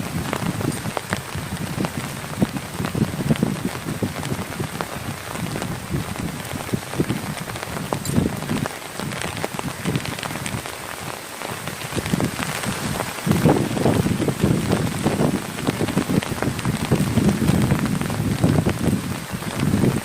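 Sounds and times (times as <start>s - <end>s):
close raindrops striking a surface: 0.0s - 20.0s
rain falling: 0.0s - 20.0s.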